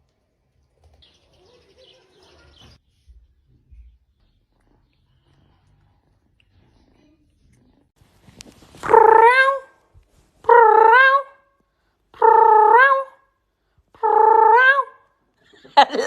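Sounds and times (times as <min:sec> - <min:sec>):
pet animal calling: 0:08.8 - 0:09.8.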